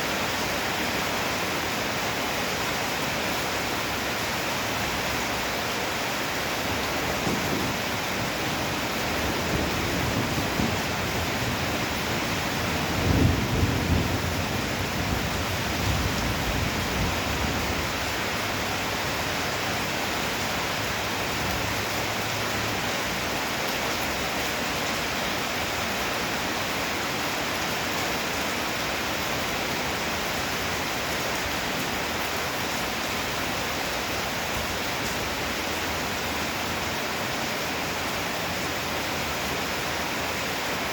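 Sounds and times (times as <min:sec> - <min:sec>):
heavy rain pouring: 0:00.0 - 0:40.9
thunder rumbling: 0:06.6 - 0:18.0.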